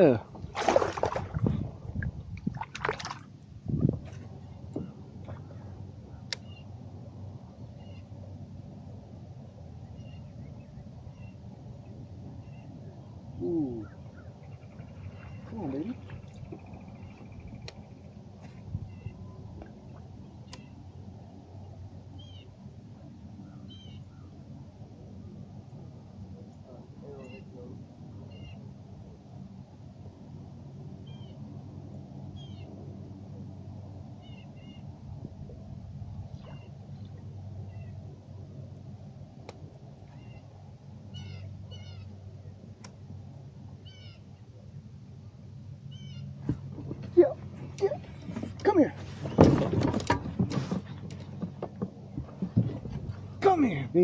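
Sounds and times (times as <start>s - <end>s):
low background rumble: 0.0s - 54.0s
low steady hum: 0.0s - 54.0s
bird mewing calls: 13.3s - 18.1s, 41.1s - 42.2s, 43.8s - 44.4s, 45.9s - 46.4s
short bird calls: 41.1s - 42.1s, 43.8s - 44.3s, 45.9s - 46.3s.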